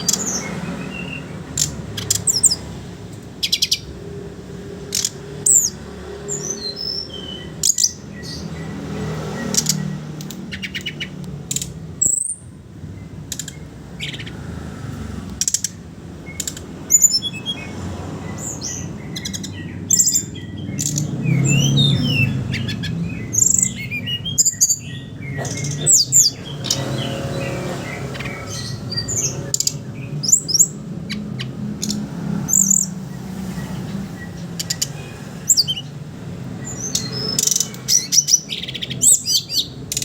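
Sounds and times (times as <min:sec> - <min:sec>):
bird chattering clicks: 0:00.0 - 0:04.0, 0:04.8 - 0:40.0.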